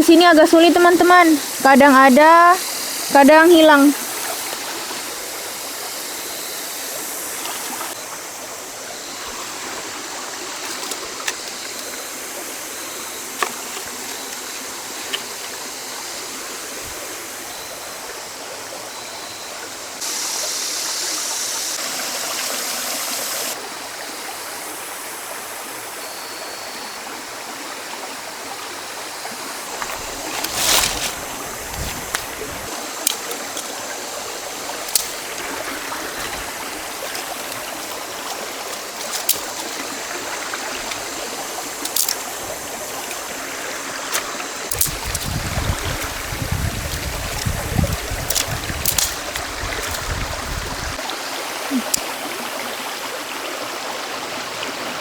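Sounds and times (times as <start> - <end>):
river water rushing: 0.0 - 17.7, 28.2 - 55.0
small clicks: 33.0 - 33.7, 34.8 - 35.5, 41.8 - 42.3, 46.9 - 50.1.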